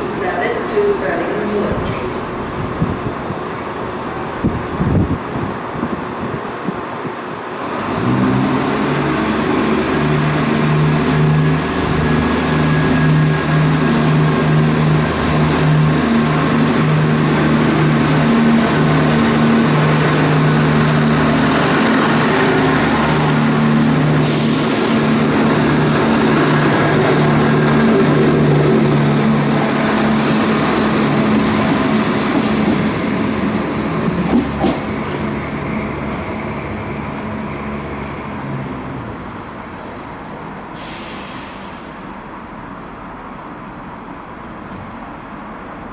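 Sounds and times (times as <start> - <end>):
diesel train engines running: 0.0 - 45.9
brief high hisses: 40.8 - 42.0.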